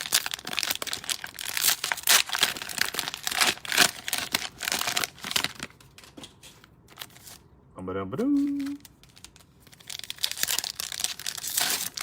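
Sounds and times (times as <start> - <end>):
cellophane wrapper crinkling and tearing: 0.0 - 7.4, 8.3 - 12.0.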